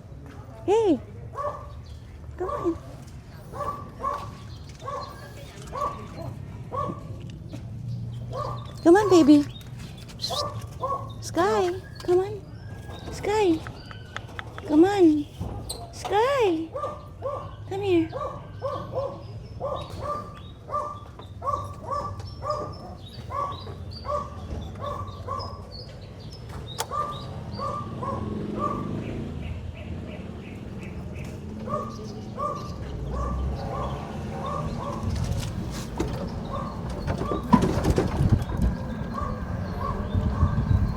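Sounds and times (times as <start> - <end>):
rustling clatter: 35.0 - 39.2.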